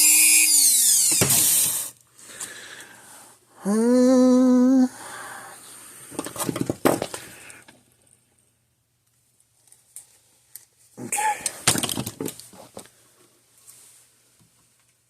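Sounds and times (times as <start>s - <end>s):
rotary tool whine: 0.0s - 1.9s.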